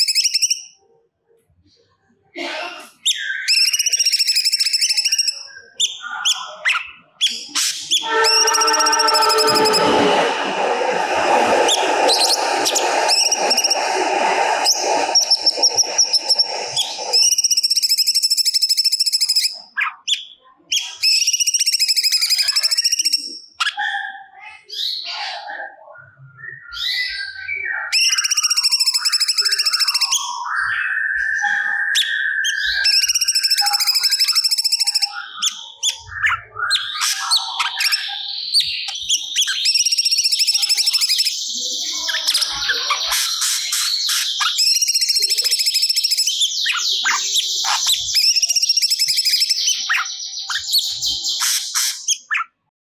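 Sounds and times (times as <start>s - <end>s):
loud steady noise: 8.0s - 18.4s.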